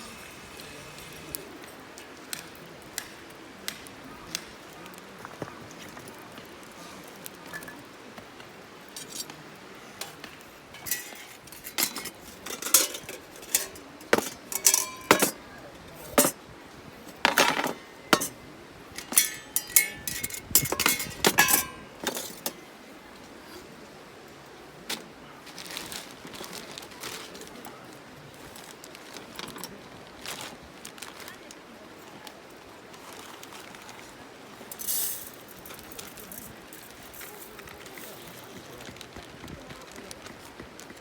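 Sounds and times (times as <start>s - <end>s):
metal camp gear clinking: 8.9s - 9.3s, 10.0s - 16.4s, 17.0s - 22.6s, 34.7s - 37.6s.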